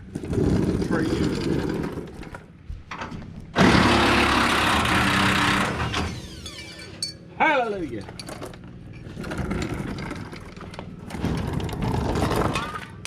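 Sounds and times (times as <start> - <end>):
power tool whining: 3.6 - 7.0.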